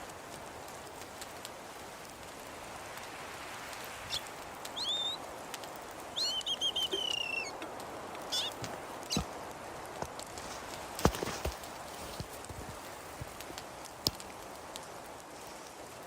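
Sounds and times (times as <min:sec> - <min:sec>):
steady hiss: 0:00.0 - 0:16.0
faint ticks: 0:03.7 - 0:16.0
songbird chirps and trill: 0:04.0 - 0:05.2, 0:06.0 - 0:09.3.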